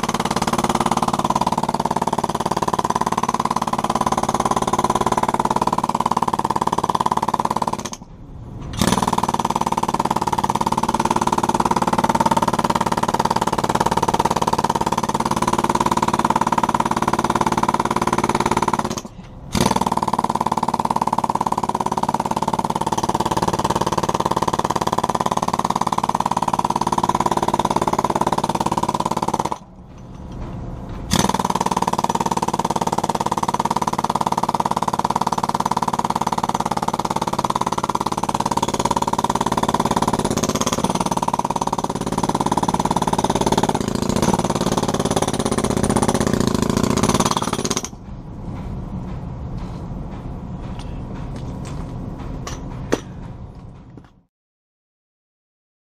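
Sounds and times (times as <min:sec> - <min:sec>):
jackhammer hammering concrete: 0:00.0 - 0:08.1, 0:08.7 - 0:29.8, 0:31.0 - 0:48.0.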